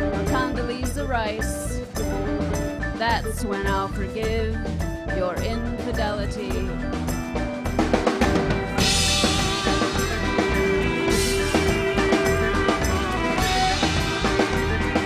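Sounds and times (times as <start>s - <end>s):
steady drum beat: 0.0s - 15.0s
held guitar notes: 6.7s - 15.0s.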